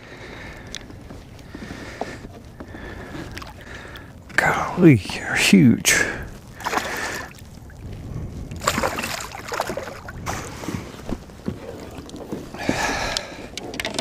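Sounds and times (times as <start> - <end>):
water sloshing and splashing: 1.4 - 4.2, 6.2 - 14.0.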